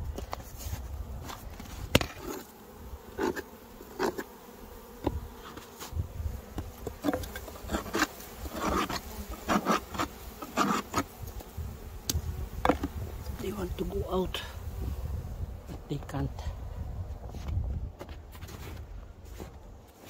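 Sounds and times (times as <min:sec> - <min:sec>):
honeybees buzzing in hive: 0:00.0 - 0:20.0
knocks and scrapes on wood: 0:00.1 - 0:02.5, 0:05.0 - 0:11.1, 0:12.6 - 0:13.0.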